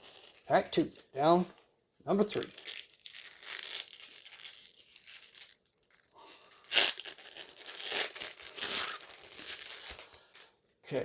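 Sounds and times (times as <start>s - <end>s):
card pack wrapper tearing: 2.1s - 10.5s.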